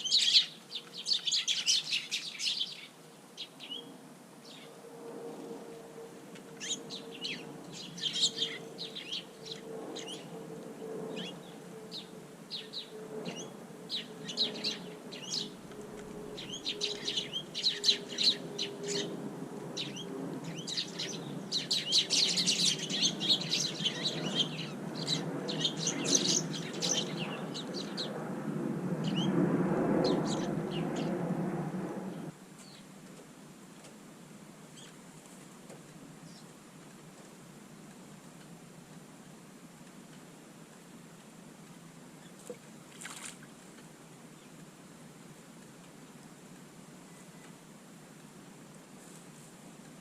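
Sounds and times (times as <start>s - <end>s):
birds chirping: 0.0s - 28.3s, 30.0s - 31.2s
low rustling noise: 31.0s - 50.0s.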